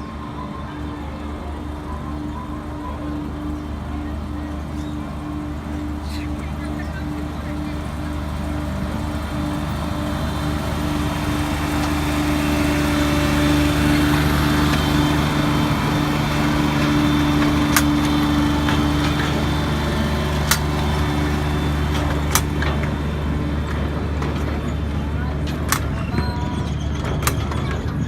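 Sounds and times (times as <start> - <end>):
small train engine running: 0.0 - 28.0
sharp clicks: 16.0 - 19.5, 20.3 - 23.0.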